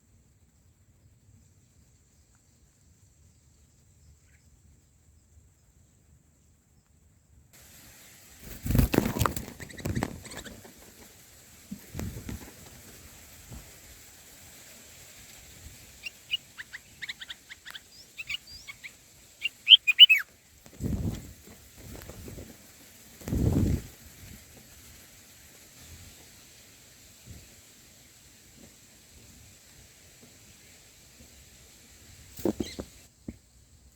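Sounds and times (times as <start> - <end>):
faint steady hiss: 0.0 - 33.9
low rustle: 7.6 - 16.3
birds chirping: 8.4 - 12.6, 15.8 - 20.3, 32.4 - 33.1.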